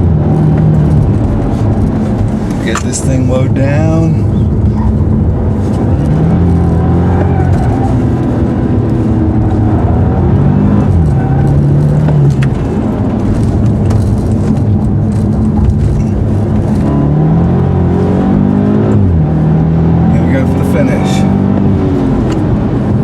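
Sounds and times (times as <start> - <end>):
car engine under hard driving: 0.0 - 23.0.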